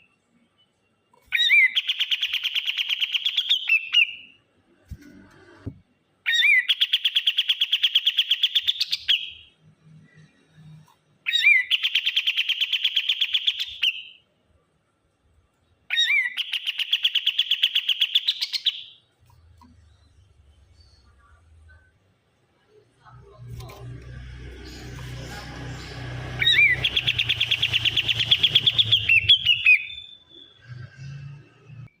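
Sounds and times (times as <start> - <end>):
bird singing rapid high notes: 23.6 - 30.6.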